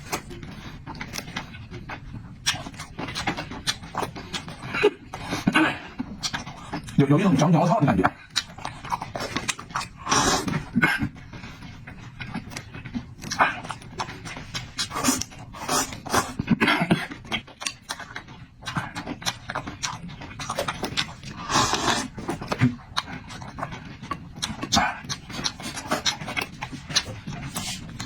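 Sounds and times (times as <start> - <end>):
person chewing: 0.0 - 28.0
breathing or slurping: 10.0 - 10.7, 21.3 - 22.2.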